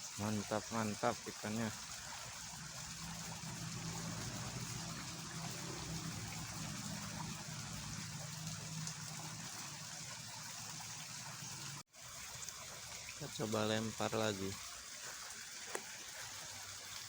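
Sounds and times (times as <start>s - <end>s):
water rushing through a ditch: 0.0s - 17.0s.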